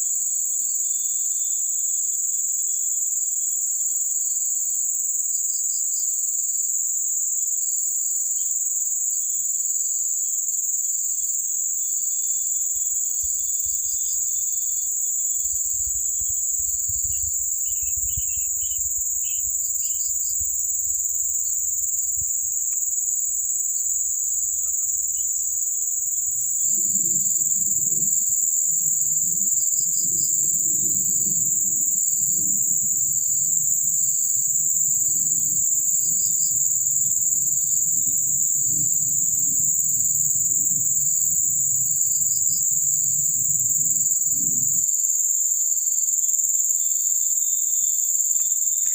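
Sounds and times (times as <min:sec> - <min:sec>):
pulsing insect call: 0:00.0 - 0:02.9, 0:07.9 - 0:48.9
high-pitched insect chorus: 0:00.0 - 0:48.9
low rumbling noise: 0:12.5 - 0:28.3.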